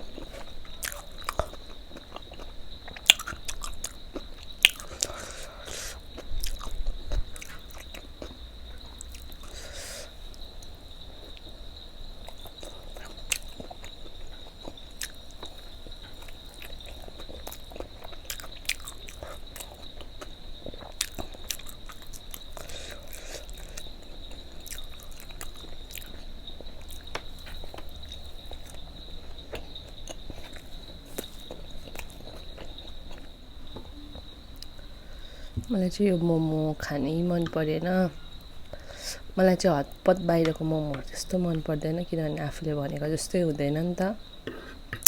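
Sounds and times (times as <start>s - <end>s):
biting and chewing food: 0.0s - 11.5s, 12.2s - 34.8s.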